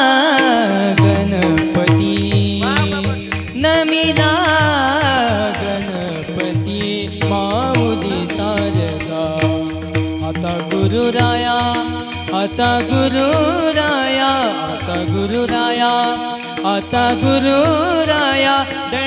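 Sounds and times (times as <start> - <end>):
person singing ornamented line: 0.0 - 19.0
drum strokes: 0.4 - 13.9.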